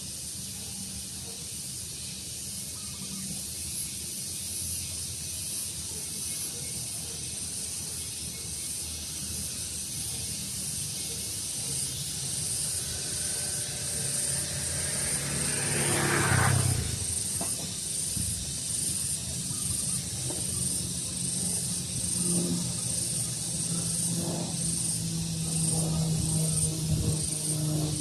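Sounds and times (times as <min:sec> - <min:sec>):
pulsing insect chirp: 0:00.0 - 0:28.0
loud sweep: 0:12.0 - 0:17.5.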